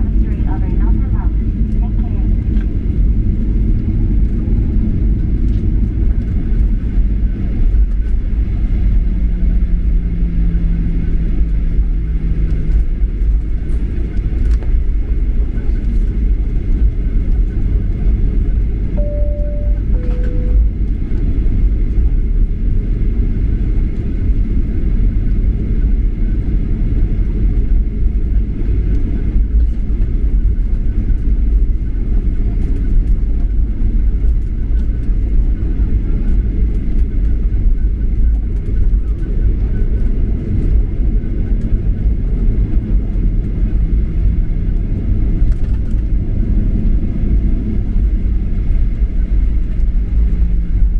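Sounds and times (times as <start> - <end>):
airliner cabin rumble: 0.0 - 50.9
two-tone chime: 19.0 - 20.7.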